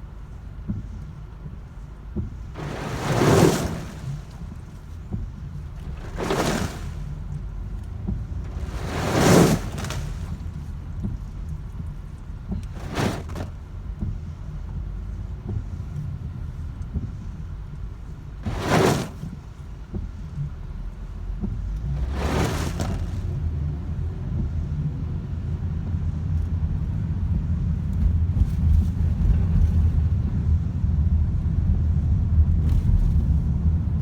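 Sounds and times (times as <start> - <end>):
road traffic rumble: 0.0 - 34.0
vehicles whooshing past: 2.6 - 4.7, 8.4 - 10.5, 22.0 - 24.0.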